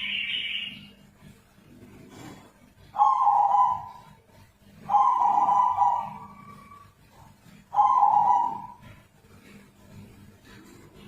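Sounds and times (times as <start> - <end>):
dove calling: 2.9 - 4.2, 4.8 - 9.0.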